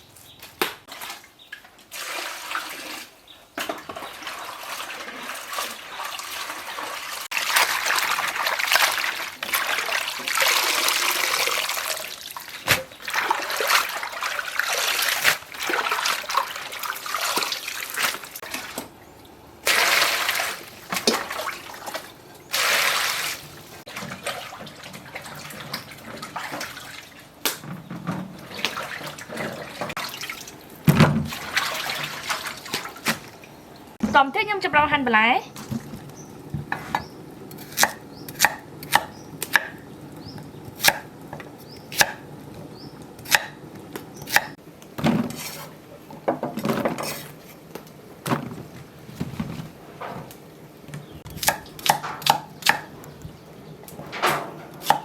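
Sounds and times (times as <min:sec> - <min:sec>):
water pouring and splashing: 0:00.8 - 0:34.1, 0:35.5 - 0:37.6.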